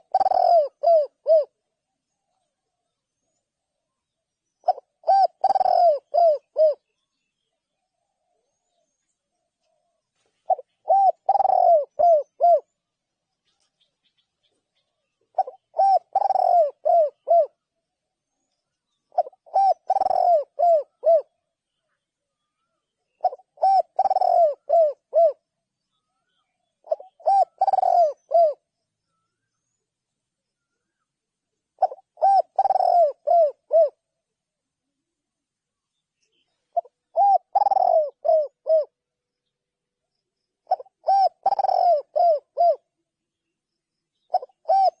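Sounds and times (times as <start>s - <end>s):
dove cooing: 0.0s - 1.7s, 4.6s - 7.0s, 9.7s - 12.8s, 13.4s - 17.7s, 19.0s - 21.4s, 22.7s - 25.5s, 26.7s - 28.7s, 31.8s - 34.0s, 36.7s - 39.0s, 40.6s - 43.0s, 44.2s - 45.0s.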